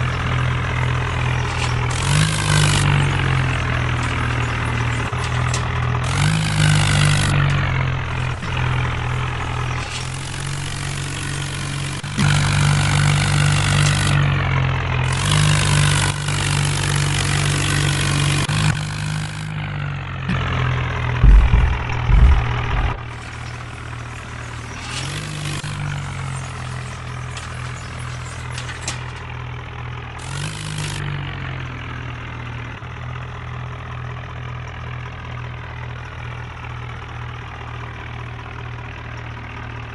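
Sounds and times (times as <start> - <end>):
tractor engine running: 0.0 - 39.9
heavy low thumps: 21.2 - 23.1.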